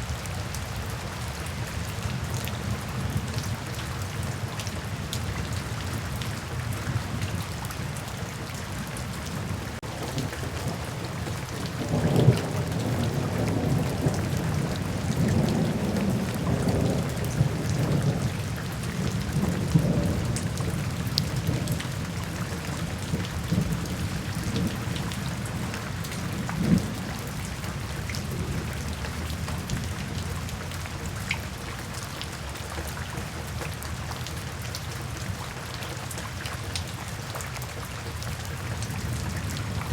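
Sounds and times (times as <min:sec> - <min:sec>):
steady rain falling: 0:00.0 - 0:39.9
rolling thunder: 0:09.8 - 0:30.5, 0:38.9 - 0:39.9.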